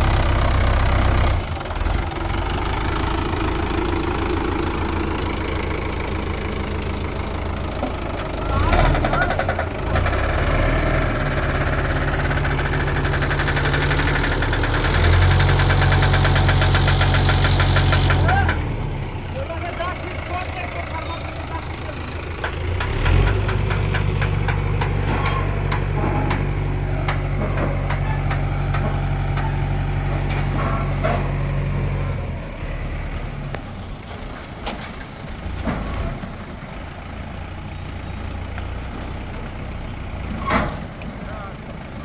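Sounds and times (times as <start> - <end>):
heavy diesel engine running: 0.0 - 42.0
metal knocks and clanks: 22.4 - 31.4.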